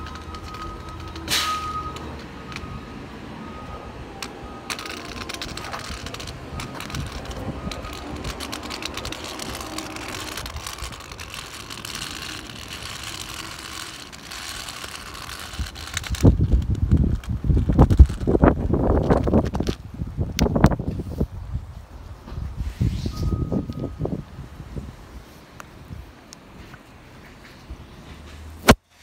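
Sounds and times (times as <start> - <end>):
short high beeps: 0.0 - 7.1, 23.1 - 24.0
garbage truck engine running: 0.0 - 16.9
rain pattering: 4.2 - 19.8.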